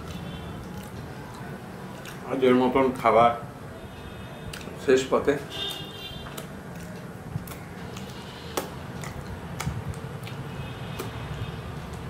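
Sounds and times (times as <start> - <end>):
chewing mouth clicks and smacks: 0.0 - 2.3, 4.5 - 4.8, 5.7 - 12.0.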